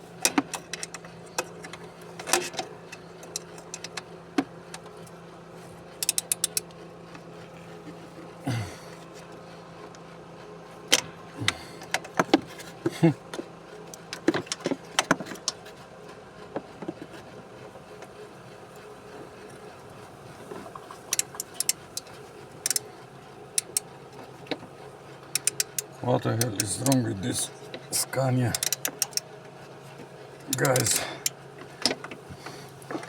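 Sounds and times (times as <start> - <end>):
steady low hum: 5.0 - 9.9, 10.6 - 12.0, 29.9 - 33.0
hand tools clicking and tapping: 6.0 - 6.6, 21.1 - 22.8, 25.3 - 27.0, 28.5 - 29.2, 30.5 - 33.0.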